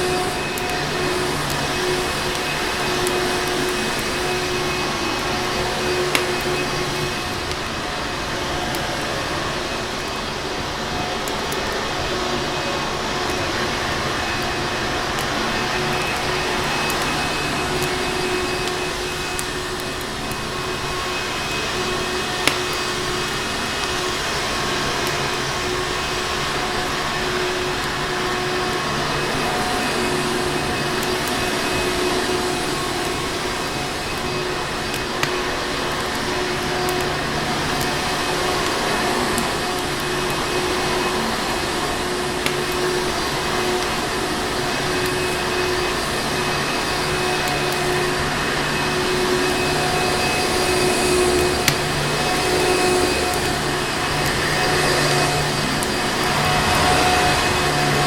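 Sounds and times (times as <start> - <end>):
crackling fire pops: 0.0 - 9.0, 9.6 - 28.8, 50.4 - 57.3
vacuum cleaner running: 0.0 - 58.0.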